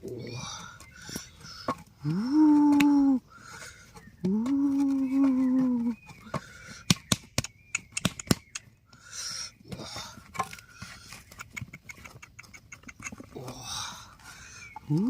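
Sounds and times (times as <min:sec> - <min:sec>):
sharp knocks and clicks: 0:06.8 - 0:08.6.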